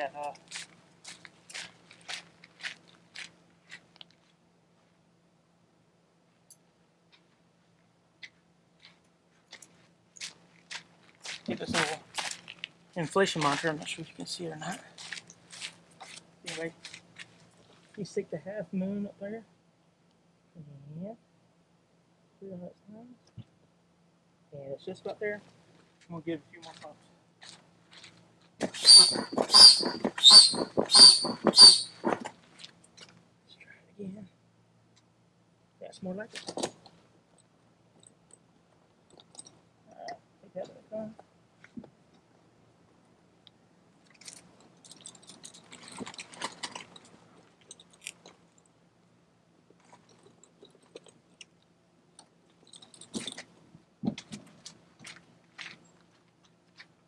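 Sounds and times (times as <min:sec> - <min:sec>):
air pump whooshing: 0:28.6 - 0:32.3.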